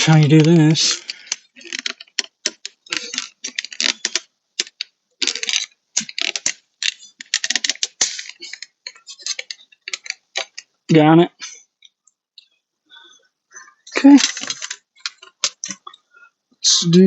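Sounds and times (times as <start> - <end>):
plastic trim clicks and rattles: 0.4 - 10.7.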